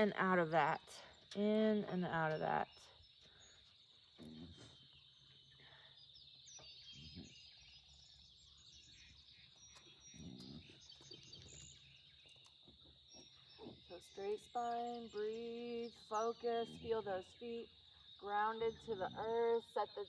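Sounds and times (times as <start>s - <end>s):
faint bird chirps: 0.8s - 20.0s.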